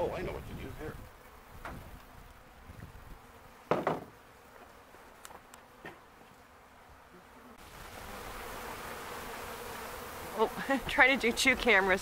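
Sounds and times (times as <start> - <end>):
bee swarm buzzing: 0.0 - 12.0.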